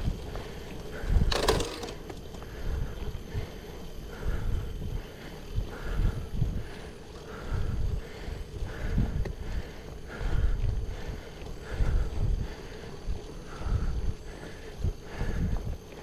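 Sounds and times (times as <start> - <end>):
wind noise on microphone: 4.1 - 15.9.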